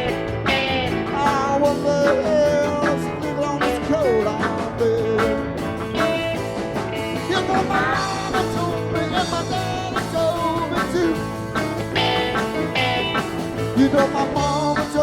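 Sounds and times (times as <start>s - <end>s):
live rock band playing: 0.0s - 15.0s
pedal steel guitar gliding: 11.3s - 14.2s.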